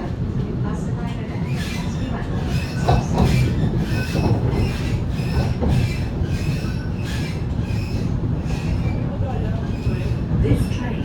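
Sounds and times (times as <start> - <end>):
train wheels rumbling on rail: 0.0 - 11.0
thin wheel squeal: 1.5 - 8.7.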